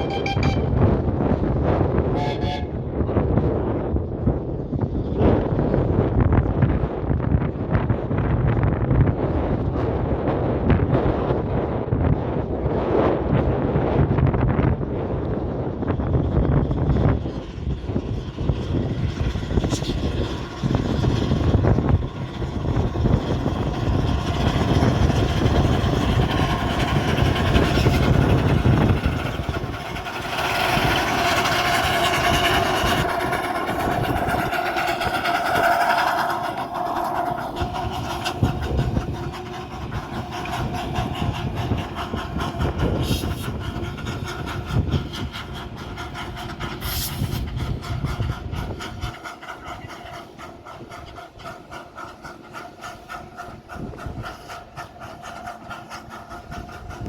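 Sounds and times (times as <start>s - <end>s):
high steady tone: 0.0s - 0.9s
train rumbling along track: 0.0s - 57.0s.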